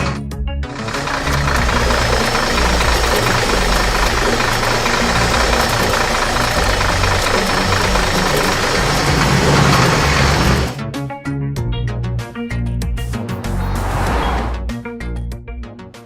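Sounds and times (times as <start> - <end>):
cartoon vehicle engine rumble: 0.0 - 10.8, 13.1 - 14.8.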